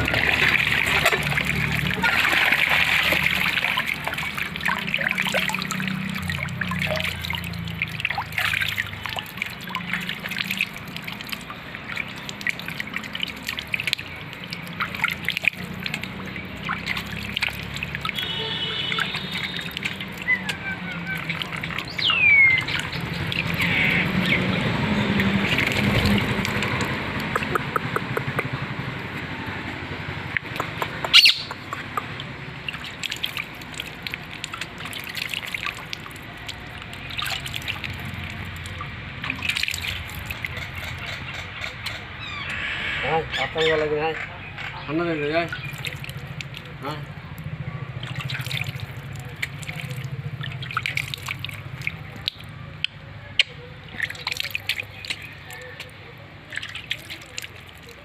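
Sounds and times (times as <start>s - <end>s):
water trickling and splashing: 0.0s - 42.6s, 43.2s - 58.0s
short bird calls: 31.1s - 31.6s.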